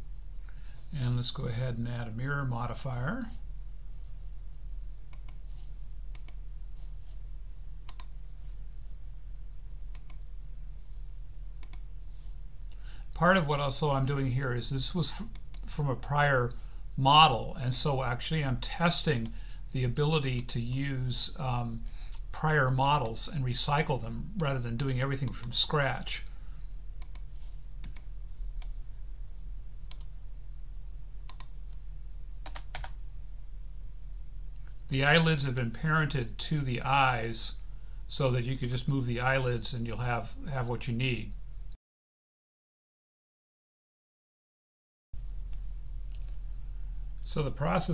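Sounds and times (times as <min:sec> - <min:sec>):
steady low hum: 0:00.0 - 0:41.8, 0:45.2 - 0:47.9
computer keyboard and mouse clicks: 0:07.9 - 0:08.1, 0:09.9 - 0:10.2, 0:11.6 - 0:11.8, 0:27.0 - 0:28.8, 0:31.3 - 0:31.8, 0:32.4 - 0:33.0.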